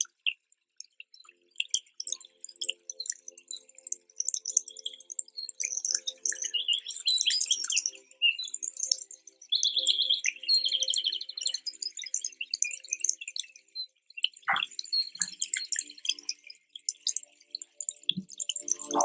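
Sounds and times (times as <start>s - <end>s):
birds chirping: 14.5s - 15.5s.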